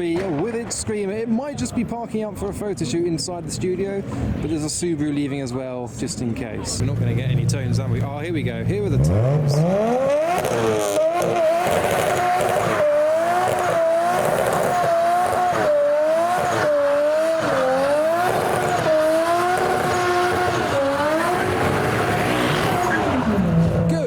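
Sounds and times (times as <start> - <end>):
car engine revving: 6.8 - 24.0
tyre squeal: 10.3 - 23.8.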